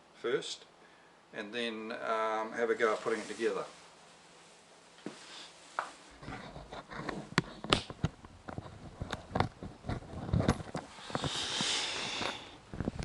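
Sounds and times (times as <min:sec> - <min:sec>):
hissing rustle: 0:02.8 - 0:06.2, 0:10.8 - 0:13.0
objects knocking and scraping: 0:06.2 - 0:11.4.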